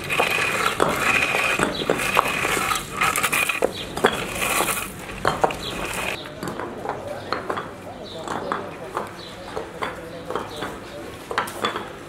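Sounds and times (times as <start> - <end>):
hard objects clinking and knocking: 0.0 - 12.0.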